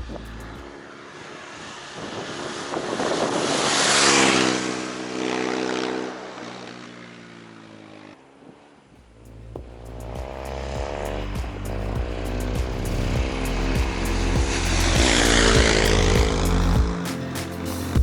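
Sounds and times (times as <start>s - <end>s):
motor vehicle passing by: 0.0s - 18.0s.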